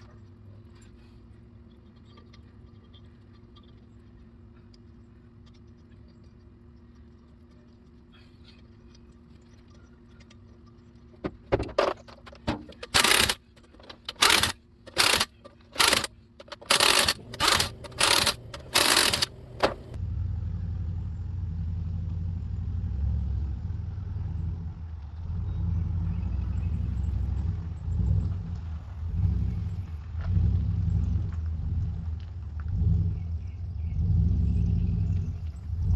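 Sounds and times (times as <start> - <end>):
engine rumbling: 11.2 - 35.9.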